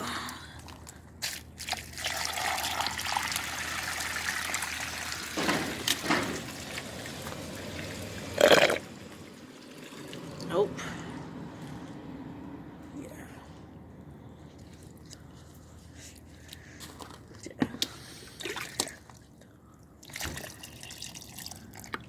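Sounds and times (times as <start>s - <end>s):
water trickling through toilet: 1.6s - 10.6s, 20.0s - 22.0s.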